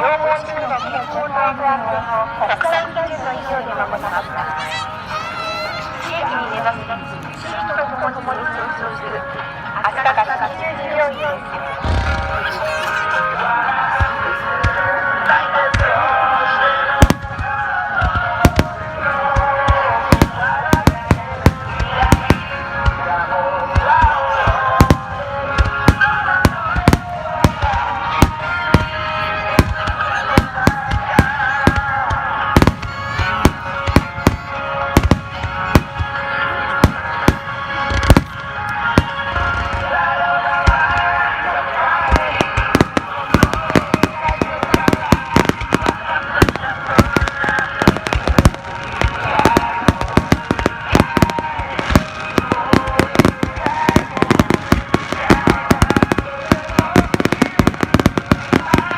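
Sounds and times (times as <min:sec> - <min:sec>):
fireworks bangs and crackles: 0:11.8 - 0:58.9
melodic music: 0:16.2 - 0:58.9.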